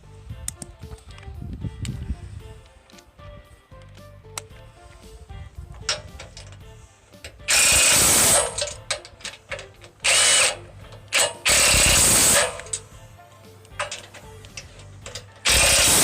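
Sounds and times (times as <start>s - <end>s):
power driver whining: 5.7s - 16.0s.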